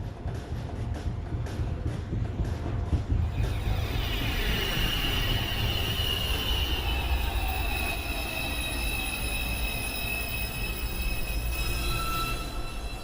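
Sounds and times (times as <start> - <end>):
train rumble: 0.0 - 13.0
train wheels squealing: 3.3 - 13.0.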